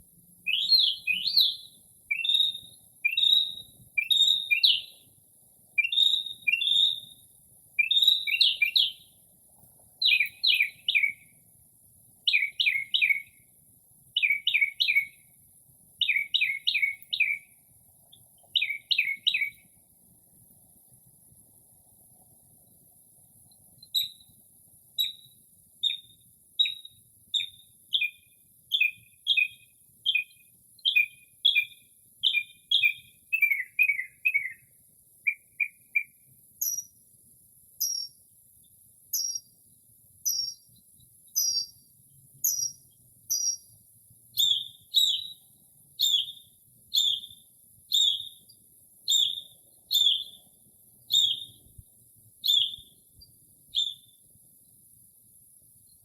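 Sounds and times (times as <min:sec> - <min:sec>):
bird singing whistled phrases: 0:00.4 - 0:05.0, 0:05.8 - 0:07.2, 0:07.8 - 0:09.1, 0:10.0 - 0:11.3, 0:12.3 - 0:13.4, 0:14.2 - 0:15.2, 0:16.0 - 0:17.6, 0:18.6 - 0:19.6, 0:23.8 - 0:24.3, 0:25.0 - 0:36.9, 0:39.2 - 0:39.5, 0:40.3 - 0:40.7, 0:41.3 - 0:41.8, 0:42.5 - 0:43.7, 0:44.4 - 0:48.5, 0:49.1 - 0:50.4, 0:51.1 - 0:51.7, 0:52.4 - 0:53.0, 0:53.7 - 0:54.2.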